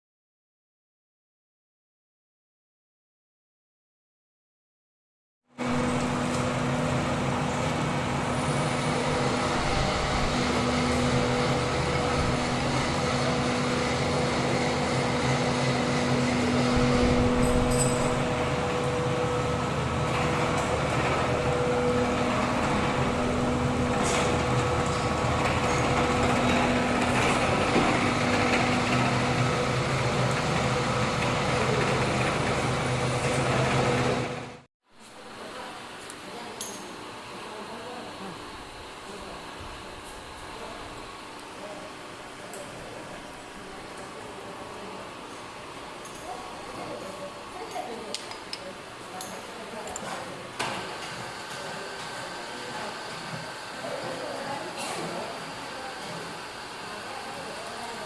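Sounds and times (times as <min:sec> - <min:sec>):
milling machine running: 0:05.6 - 0:34.6.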